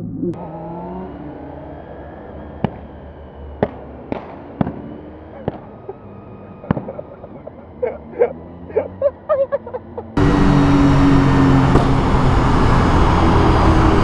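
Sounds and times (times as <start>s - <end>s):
motorcycle engine revving: 0.0s - 6.9s, 7.9s - 14.0s
sharp engine pops: 11.7s - 12.0s.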